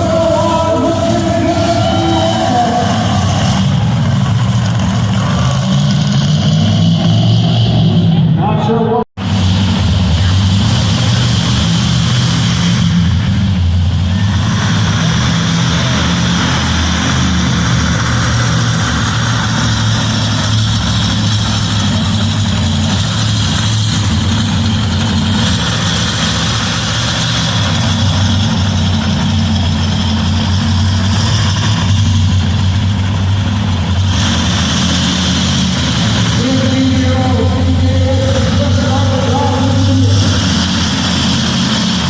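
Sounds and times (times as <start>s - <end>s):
truck engine idling loudly: 0.0s - 42.0s.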